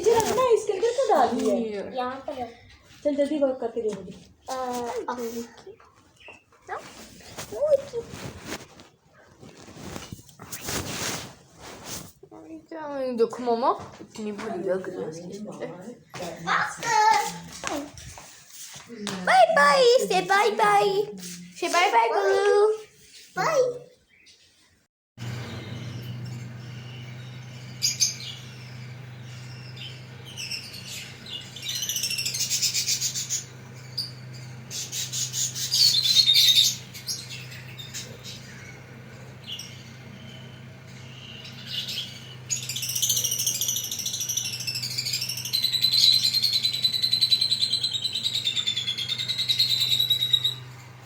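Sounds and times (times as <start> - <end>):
parrots chirping and chattering: 0.0 - 8.6, 25.2 - 51.0
steady low hum: 25.2 - 51.0.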